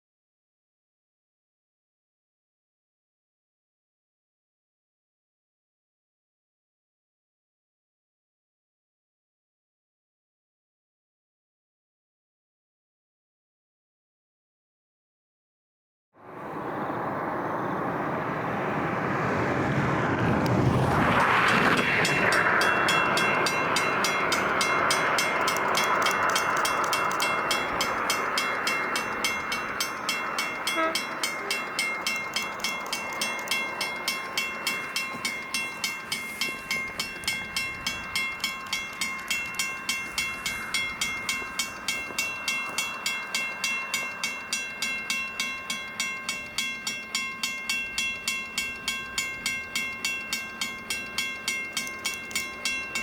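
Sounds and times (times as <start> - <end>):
train passing: 16.2 - 53.0
crossing bell ringing: 21.1 - 53.0.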